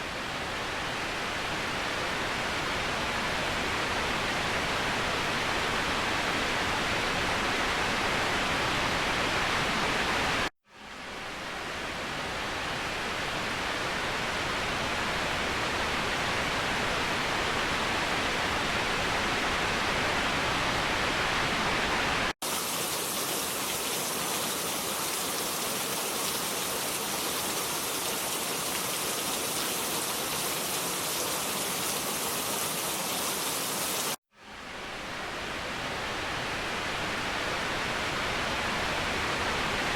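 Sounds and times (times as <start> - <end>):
waterfall rushing: 22.4 - 34.2.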